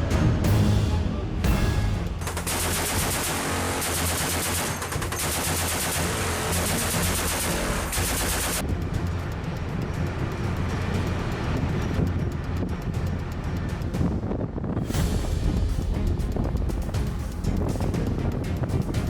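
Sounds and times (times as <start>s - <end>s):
background music: 0.0s - 19.0s
machine-gun fire: 2.2s - 8.6s.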